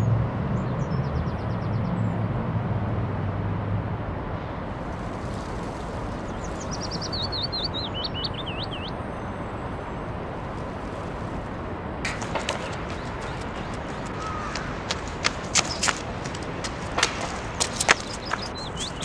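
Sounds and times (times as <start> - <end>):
outdoor ambience: 0.0 - 19.0
small bird chirping: 6.2 - 9.0, 12.2 - 19.0
running footsteps on paving: 10.6 - 19.0.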